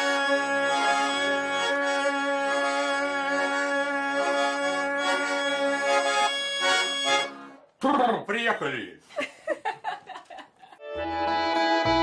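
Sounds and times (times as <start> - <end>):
accordion playing chords: 0.0 - 7.7, 10.8 - 12.0.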